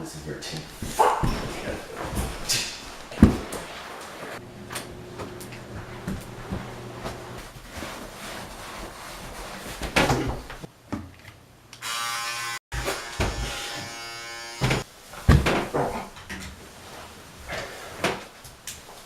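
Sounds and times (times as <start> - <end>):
steady electric buzz: 11.8 - 14.8.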